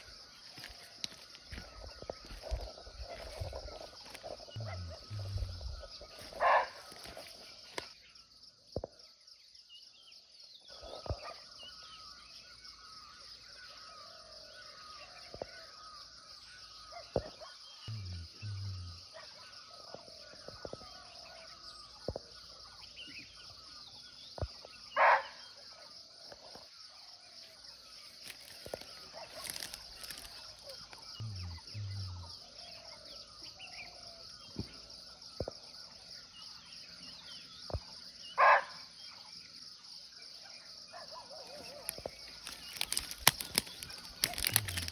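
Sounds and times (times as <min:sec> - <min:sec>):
high insect drone: 0:00.0 - 0:24.8, 0:25.8 - 0:44.9
deer barking: 0:04.6 - 0:05.6
faint bird chirps: 0:09.0 - 0:39.4.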